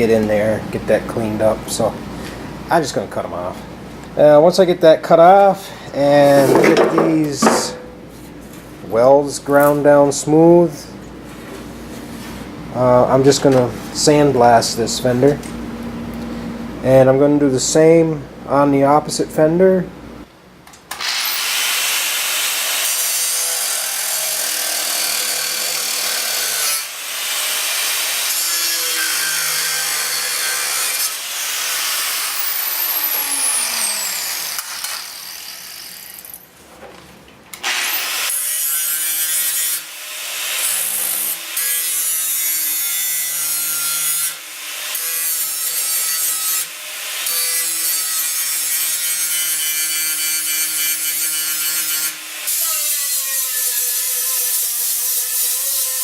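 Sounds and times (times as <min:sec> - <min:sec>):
angle grinder grinding steel: 0:21.0 - 0:36.4.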